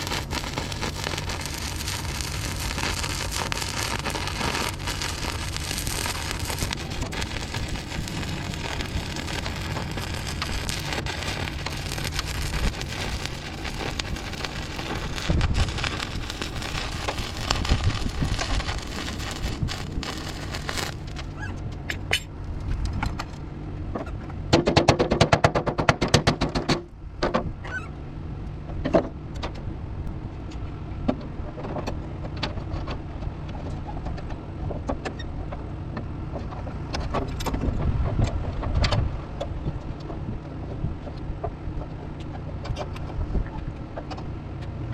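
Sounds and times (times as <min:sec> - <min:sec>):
welding arc crackling: 0:00.0 - 0:21.4
low hum: 0:00.0 - 0:24.5.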